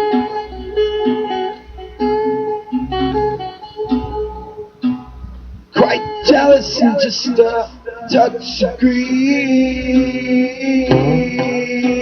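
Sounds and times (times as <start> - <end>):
guitar strumming chords: 0.0 - 12.0
deep bass: 10.9 - 11.8.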